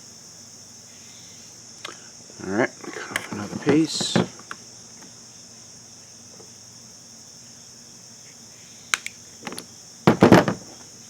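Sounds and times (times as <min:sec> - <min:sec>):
high-pitched insect chorus: 0:00.0 - 0:11.0
faint ticks: 0:01.8 - 0:02.1, 0:08.2 - 0:09.7.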